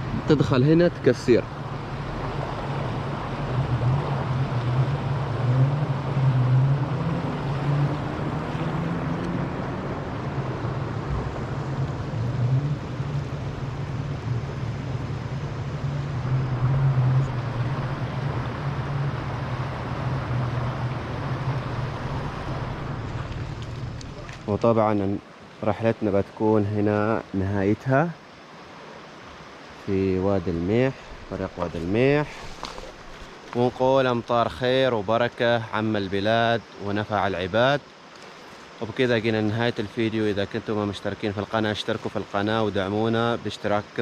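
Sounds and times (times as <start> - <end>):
vehicle engine humming: 0.0 - 24.8
wind and road noise: 0.0 - 44.0.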